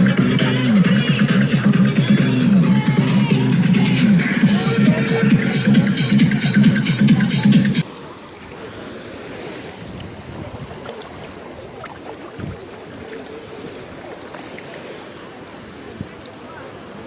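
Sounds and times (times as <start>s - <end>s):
electronic dance music: 0.0s - 7.8s
sea surf: 0.0s - 17.0s
wind buffeting microphone: 9.7s - 14.1s.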